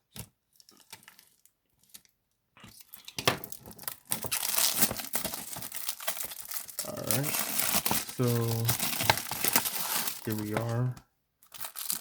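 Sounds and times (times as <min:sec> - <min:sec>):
plastic wrap crinkling: 0:02.7 - 0:12.0.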